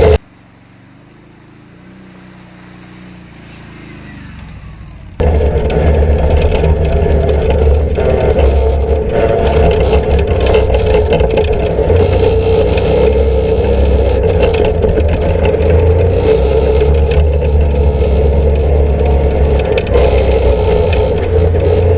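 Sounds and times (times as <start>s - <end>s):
rattling and scraping: 0.0s - 0.2s, 5.2s - 21.9s
atv engine drone: 0.0s - 21.9s.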